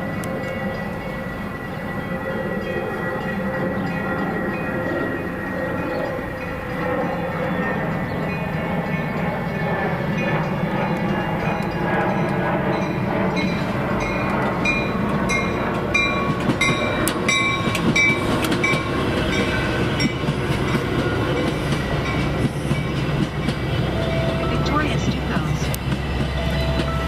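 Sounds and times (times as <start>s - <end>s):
train rumbling past: 0.0s - 27.0s
wheels clicking over rails: 5.8s - 27.0s.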